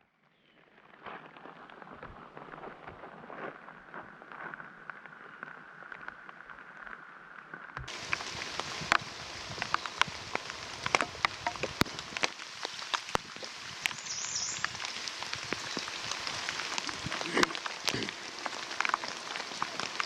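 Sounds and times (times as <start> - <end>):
raindrops tapping on surface: 7.8 - 20.0.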